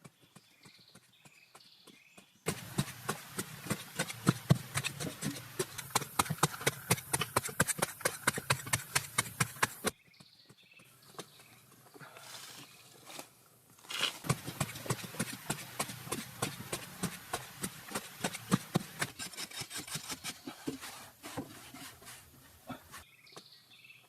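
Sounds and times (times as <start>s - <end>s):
rapid sharp knocks: 2.5s - 9.9s, 14.3s - 19.2s.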